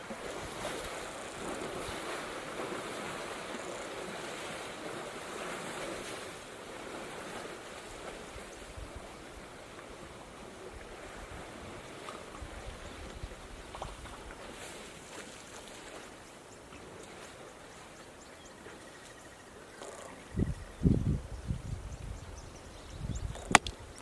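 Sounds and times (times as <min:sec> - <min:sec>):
wind on microphone: 0:00.0 - 0:14.8, 0:20.0 - 0:24.0
water rushing and splashing: 0:00.0 - 0:18.8.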